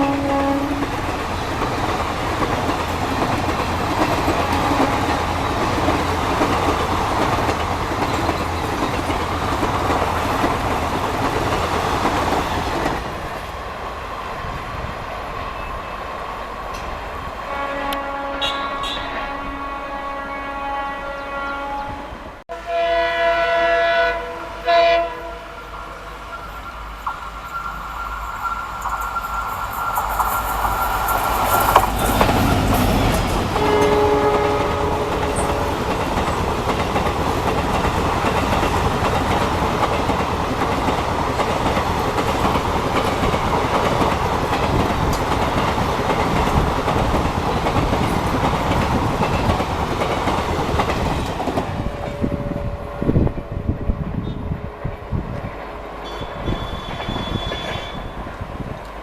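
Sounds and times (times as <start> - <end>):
locomotive horn blasts: 0.0 - 0.9, 4.4 - 5.5, 17.5 - 26.1, 32.0 - 35.7
wheels clacking on rail joints: 0.0 - 13.3, 28.1 - 52.3
train passing with rumble: 0.0 - 59.0.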